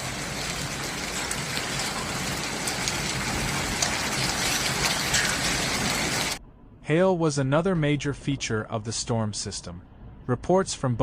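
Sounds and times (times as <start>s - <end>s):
heavy rain pouring: 0.0s - 6.4s.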